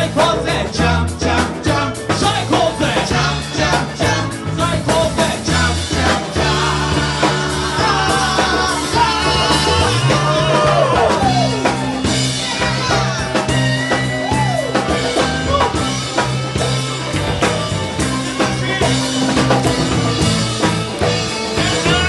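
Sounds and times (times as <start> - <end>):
drums hitting hard: 0.0 - 22.0
live rock band playing: 0.0 - 22.0.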